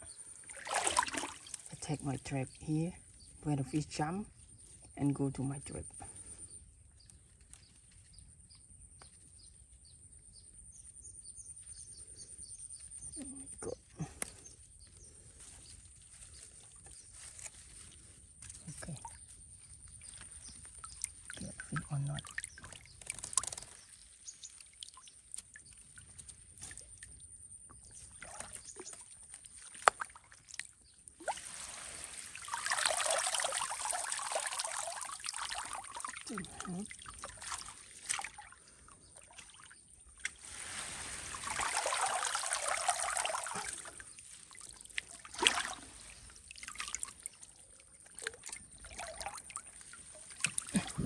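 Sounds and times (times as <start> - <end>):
water splashes and drips: 0.4 - 2.4, 16.1 - 27.2, 27.8 - 51.0
water pouring and trickling: 0.5 - 2.4, 19.9 - 27.2, 27.9 - 51.0
small birds chirping: 2.0 - 29.7.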